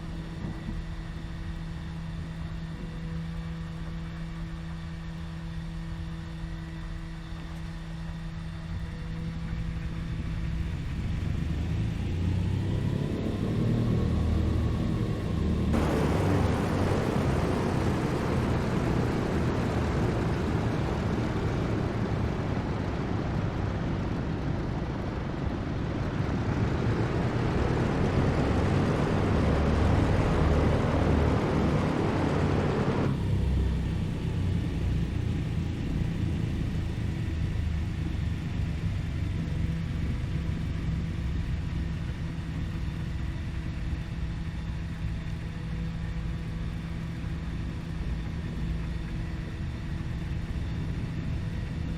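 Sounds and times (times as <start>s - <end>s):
aircraft piston engines droning: 0.0s - 51.9s
rushing noise: 15.7s - 21.7s.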